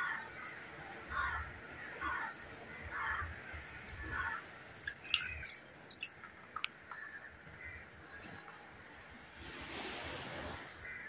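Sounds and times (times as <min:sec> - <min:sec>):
crow-like cawing: 0:00.0 - 0:03.4, 0:04.0 - 0:04.5, 0:10.8 - 0:11.0.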